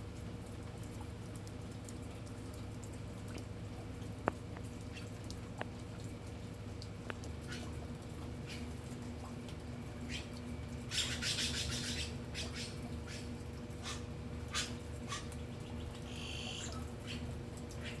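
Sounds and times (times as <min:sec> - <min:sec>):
steady low hum: 0:00.0 - 0:18.0
birds chirping: 0:09.9 - 0:18.0
buzzy bird call: 0:16.1 - 0:18.0.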